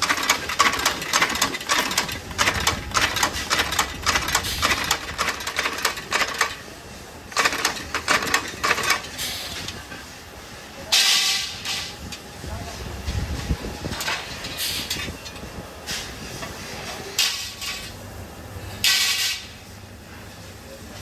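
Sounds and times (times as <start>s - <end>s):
mechanical clicking and clattering: 0.0s - 6.7s, 7.3s - 9.9s.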